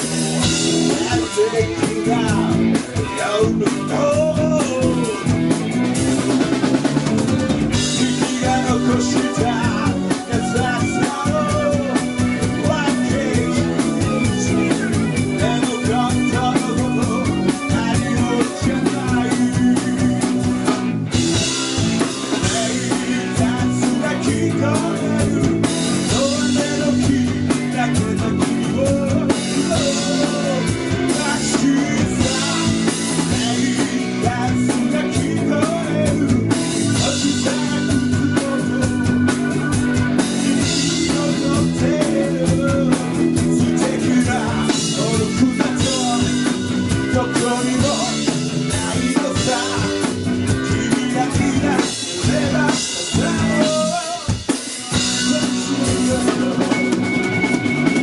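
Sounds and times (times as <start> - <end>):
drum kit: 0.0 - 58.0
live rock band playing: 0.0 - 58.0.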